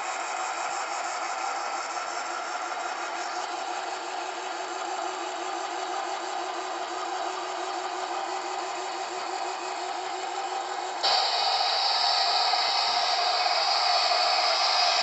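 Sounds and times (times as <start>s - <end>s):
toy mechanical whir pulsing: 6.7s - 15.0s
loud steady hiss: 10.1s - 15.0s.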